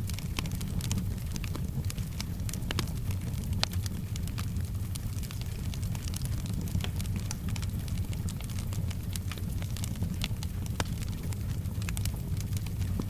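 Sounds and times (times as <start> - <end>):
low rumble of flames: 0.0 - 13.0
soft rain: 0.0 - 13.0
wood fire crackling and popping: 0.0 - 13.0.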